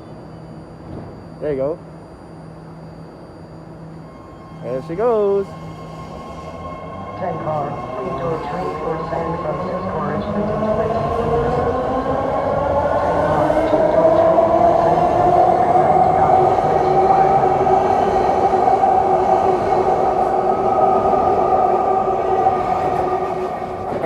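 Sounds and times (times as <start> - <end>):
wheels rumbling on rail: 7.4 - 24.0.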